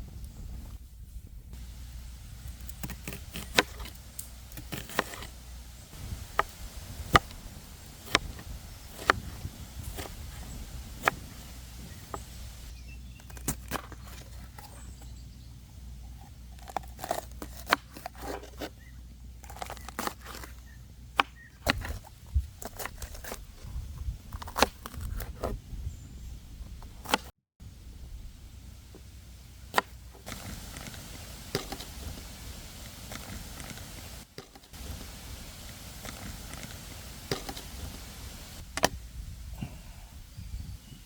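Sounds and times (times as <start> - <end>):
campfire crackling: 1.6 - 12.7, 28.8 - 39.1.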